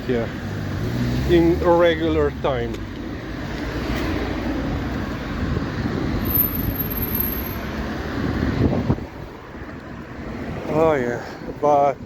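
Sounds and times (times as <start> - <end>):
vehicle passing: 0.2 - 11.4.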